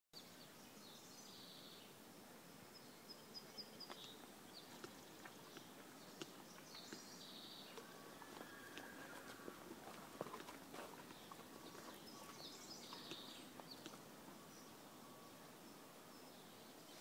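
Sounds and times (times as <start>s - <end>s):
faint high bird chirps: 11.1s - 17.0s.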